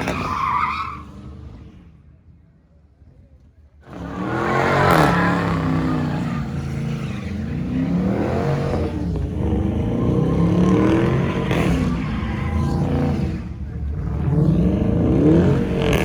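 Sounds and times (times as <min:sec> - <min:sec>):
car engine revving hard: 0:03.8 - 0:16.0.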